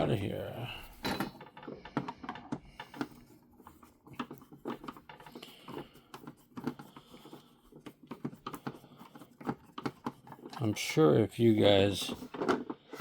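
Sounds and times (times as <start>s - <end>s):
screwdriver clicking and scraping: 1.2s - 11.0s.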